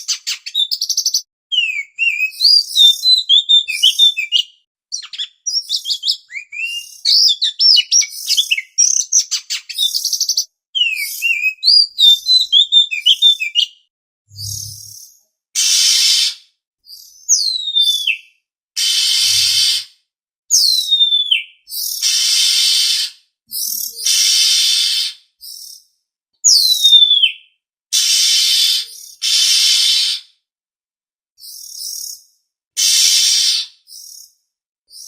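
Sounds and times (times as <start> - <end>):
bird whistles sliding down: 14.3 - 15.0, 18.8 - 19.9, 22.0 - 23.1, 24.0 - 25.2, 28.0 - 30.2, 32.8 - 33.7
bird harsh rasping churrs: 24.0 - 25.1, 32.8 - 33.7.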